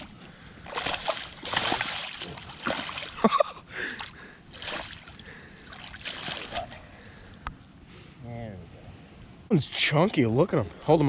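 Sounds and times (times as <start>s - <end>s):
fish thrashing water splashes: 0.0s - 3.3s, 4.0s - 6.8s.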